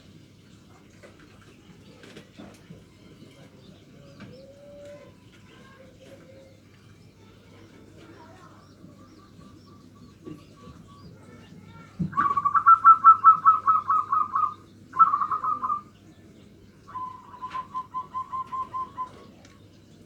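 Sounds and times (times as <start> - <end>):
dove cooing: 3.9 - 5.2, 12.2 - 15.9, 16.8 - 19.6.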